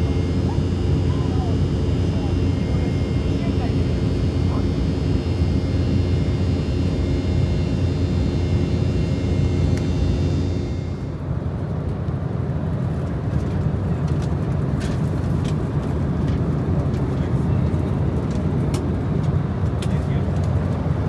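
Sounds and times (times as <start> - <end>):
airliner cabin rumble: 0.0 - 11.1
thin high whine: 0.0 - 11.1.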